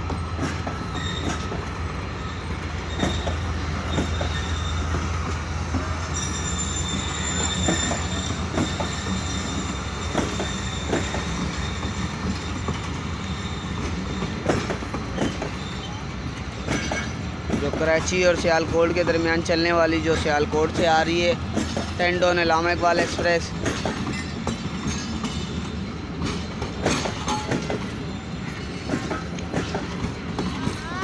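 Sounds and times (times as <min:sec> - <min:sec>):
train coaches rumbling past: 0:00.0 - 0:31.0
wheels clanking over rail joints: 0:00.0 - 0:31.0
high wheel squeal: 0:00.4 - 0:17.2, 0:26.9 - 0:29.7.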